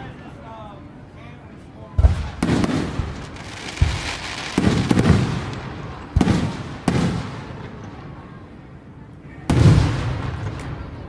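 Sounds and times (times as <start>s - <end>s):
fireworks booming: 2.0s - 8.2s, 9.4s - 11.0s.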